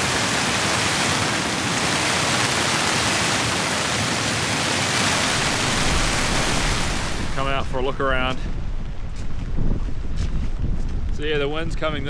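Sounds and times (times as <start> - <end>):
heavy rain on a tent: 0.0 - 8.3.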